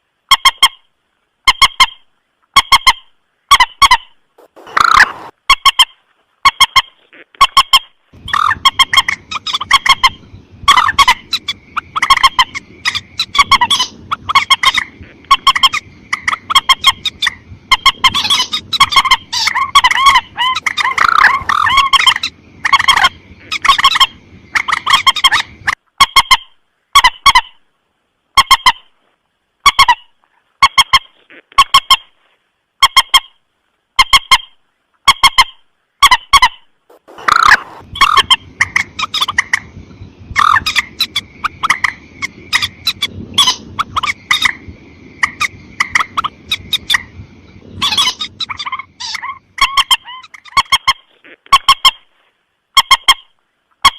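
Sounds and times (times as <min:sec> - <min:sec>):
background hiss: 0:00.0 - 0:53.8
rail bird calling: 0:01.5 - 0:27.6, 0:35.1 - 0:52.0.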